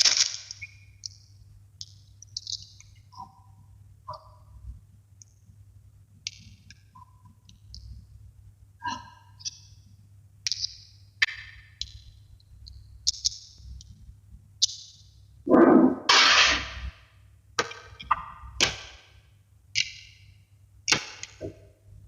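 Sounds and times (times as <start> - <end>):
magnetic balls clicking together: 0.0 - 3.4, 10.4 - 15.1, 19.7 - 21.7.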